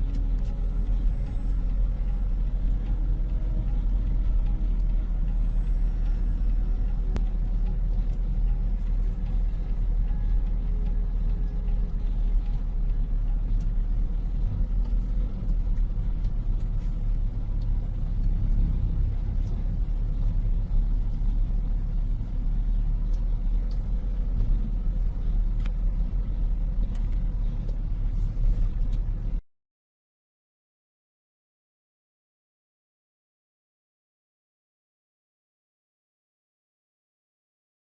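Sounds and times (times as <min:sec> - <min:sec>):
truck engine rumbling: 0:00.0 - 0:29.4.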